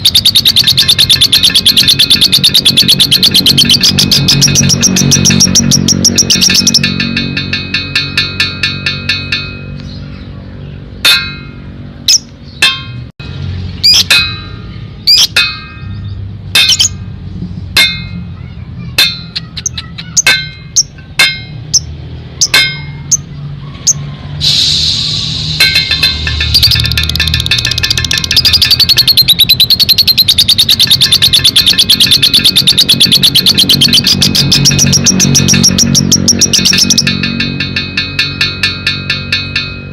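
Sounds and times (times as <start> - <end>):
bird chirping shrilly: 0.0 - 7.0, 13.8 - 17.0, 18.8 - 21.0, 21.7 - 37.1
lovebird rapid chattering: 0.0 - 8.7, 13.8 - 14.2, 15.0 - 17.0, 18.9 - 23.3, 25.3 - 37.5.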